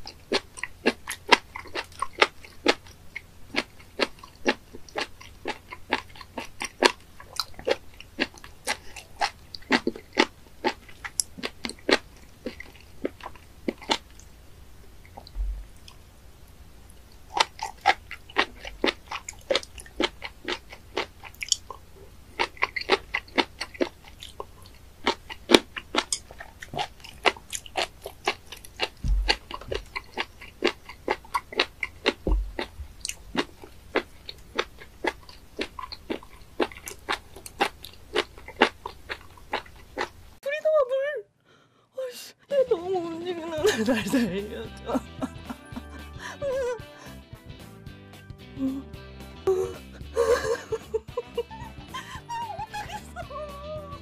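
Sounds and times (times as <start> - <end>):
wet crunchy chewing: 0.0 - 14.4, 16.9 - 40.4
low thumps: 15.2 - 15.9, 29.0 - 29.9, 32.2 - 33.4.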